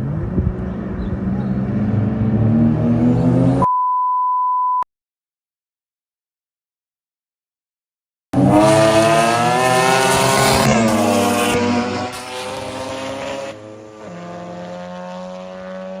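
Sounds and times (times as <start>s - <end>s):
rotary engine running hard: 8.4s - 16.0s.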